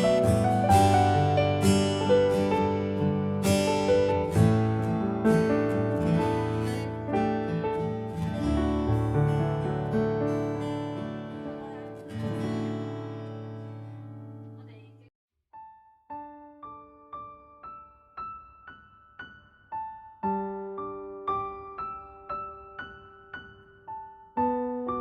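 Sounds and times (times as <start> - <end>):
strummed acoustic guitar: 0.0 - 14.5.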